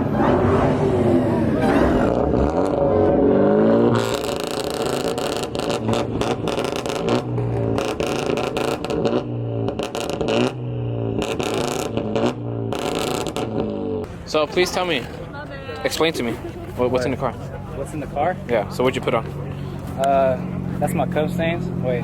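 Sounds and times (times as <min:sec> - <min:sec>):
car engine revving: 0:00.0 - 0:14.9, 0:16.7 - 0:22.0
exhaust cracks and pops: 0:04.0 - 0:10.6.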